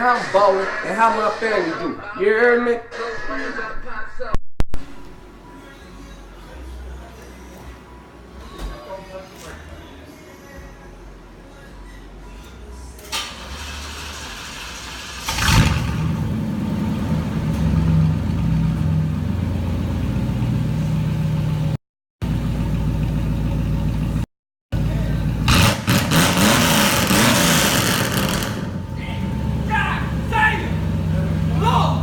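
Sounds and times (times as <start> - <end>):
car engine starting: 13.0 - 32.0
car engine running and revving: 13.4 - 31.7.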